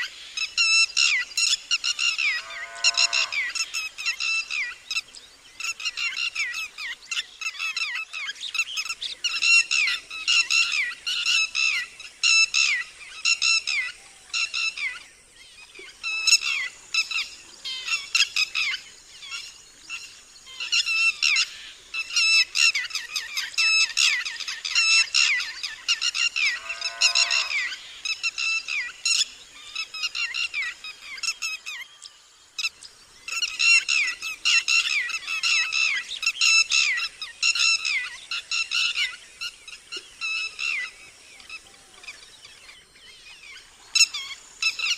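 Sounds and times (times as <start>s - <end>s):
lapwing alarm call: 1.8s - 5.0s, 16.0s - 31.8s
lower falling bird call: 2.0s - 3.6s, 26.3s - 27.8s.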